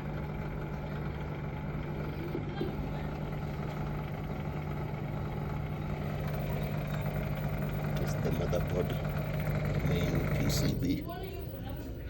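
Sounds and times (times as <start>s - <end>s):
washing machine motor humming: 0.0s - 12.0s.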